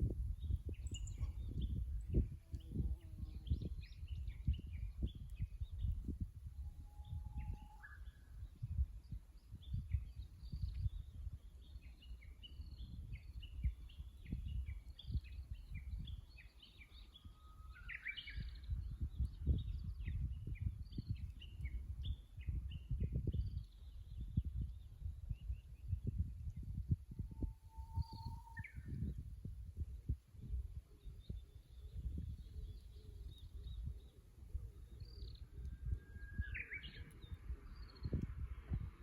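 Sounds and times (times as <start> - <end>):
bush warbler singing: 0.1 - 6.3, 7.0 - 39.0
small birds chirping: 0.4 - 6.2, 31.0 - 38.4.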